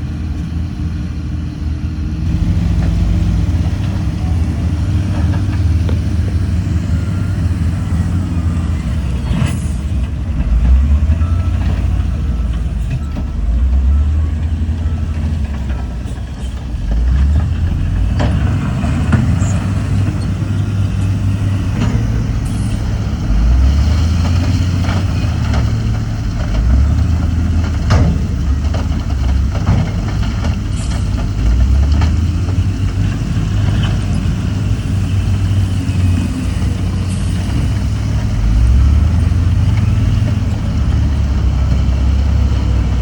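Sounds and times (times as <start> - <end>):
heavy diesel engines revving: 0.0 - 43.0
metallic clanks: 14.9 - 34.3.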